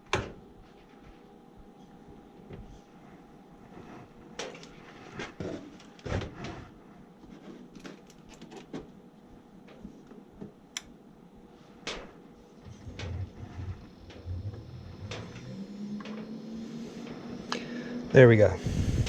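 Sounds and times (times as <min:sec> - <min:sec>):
faint steady hum: 0:00.0 - 0:19.0
hands clicking on wiring and tools: 0:07.8 - 0:08.7, 0:10.7 - 0:10.9.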